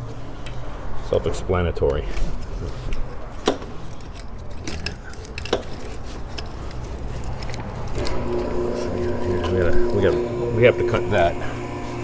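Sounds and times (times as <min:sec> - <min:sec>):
hand tools clicking on engine: 0:01.8 - 0:08.2
low steady hum: 0:07.8 - 0:12.0.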